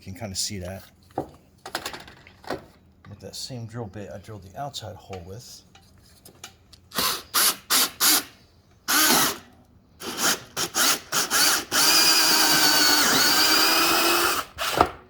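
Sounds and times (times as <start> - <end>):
power drill boring through plastic: 6.9 - 15.0.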